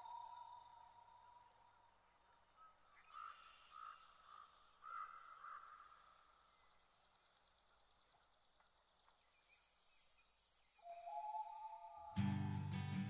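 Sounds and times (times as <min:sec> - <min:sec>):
faint bird calls: 0:00.0 - 0:06.7.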